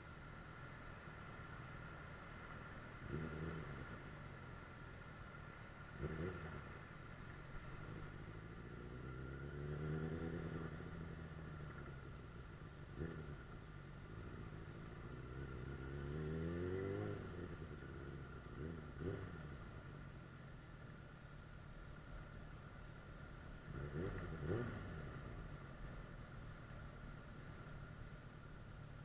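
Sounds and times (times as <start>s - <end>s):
motorcycle engine revving: 3.0s - 4.1s, 5.9s - 6.9s, 7.7s - 20.0s, 23.6s - 25.6s.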